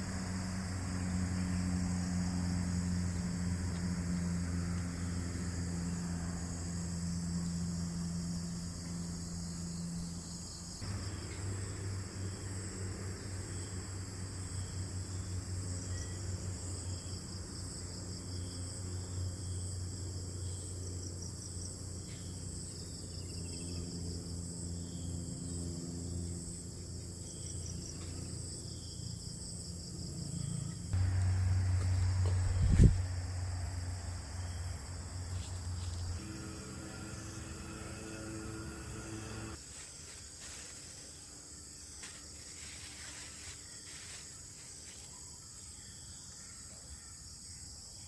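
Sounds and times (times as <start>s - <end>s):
insects chirring: 0.0s - 48.0s
low rumble: 31.0s - 39.6s.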